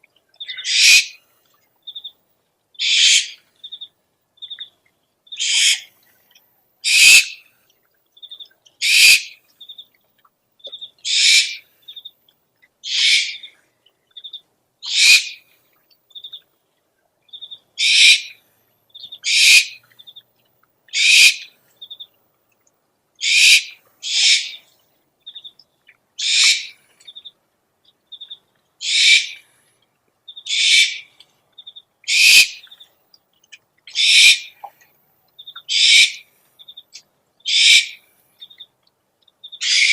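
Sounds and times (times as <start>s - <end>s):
owl hissing screech: 0.6s - 1.2s, 2.8s - 3.4s, 5.4s - 5.9s, 6.9s - 7.4s, 8.8s - 9.3s, 11.1s - 11.6s, 12.9s - 13.4s, 14.9s - 15.4s, 17.8s - 18.3s, 19.2s - 19.8s, 21.0s - 21.5s, 23.2s - 24.6s, 26.2s - 26.7s, 28.8s - 29.4s, 30.5s - 31.0s, 32.1s - 32.6s, 34.0s - 34.5s, 35.7s - 36.2s, 37.5s - 38.0s, 39.6s - 39.9s.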